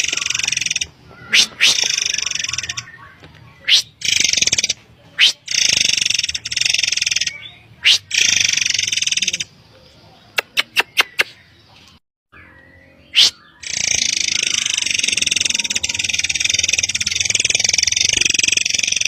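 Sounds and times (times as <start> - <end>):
bird rapid chattering: 0.0 - 9.5, 10.3 - 11.4, 13.1 - 19.0
bird sharp notes: 0.0 - 9.5, 12.3 - 19.0
bird loud sweeping call: 0.2 - 2.8, 13.1 - 18.5.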